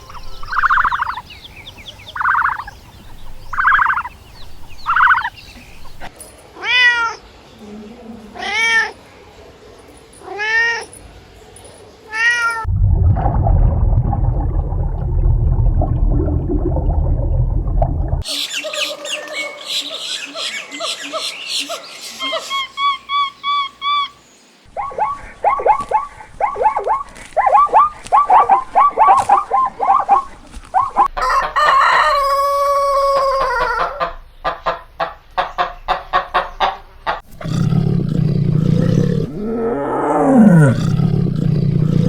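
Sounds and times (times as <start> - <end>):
loud low rough rumbling: 12.7 - 18.2.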